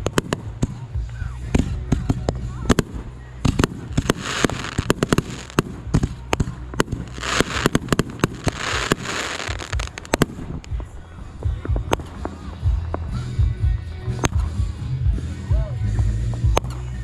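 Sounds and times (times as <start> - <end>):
fireworks bangs and crackles: 0.0 - 16.7
hissing firework crackle: 2.7 - 10.8.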